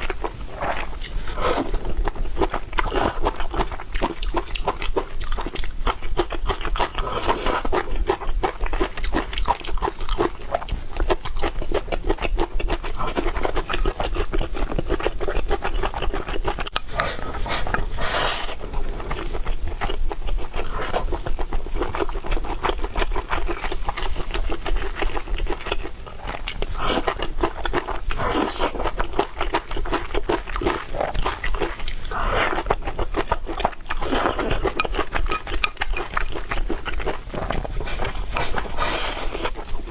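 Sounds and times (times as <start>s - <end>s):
person chewing food: 0.0s - 39.9s
bites and scrapes: 33.6s - 39.9s.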